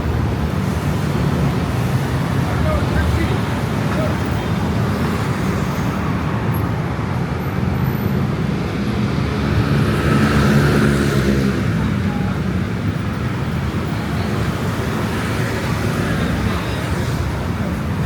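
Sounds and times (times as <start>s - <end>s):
road traffic noise: 0.0s - 18.0s
vehicle passing close by: 8.8s - 12.0s.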